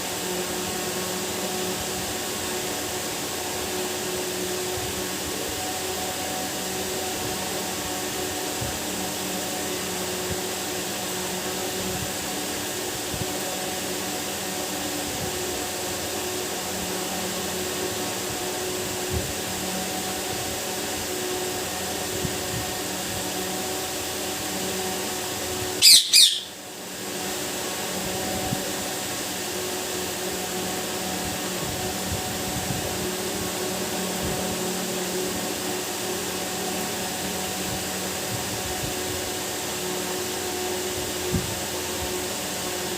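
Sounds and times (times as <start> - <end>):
machine-like hum: 0.0 - 42.9
parakeet squawk: 25.8 - 26.6.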